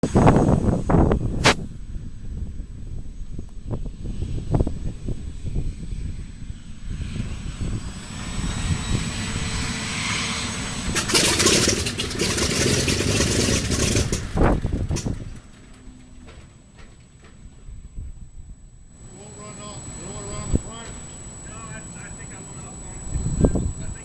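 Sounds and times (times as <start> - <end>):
radial engine starting: 10.9 - 14.4, 19.0 - 24.0.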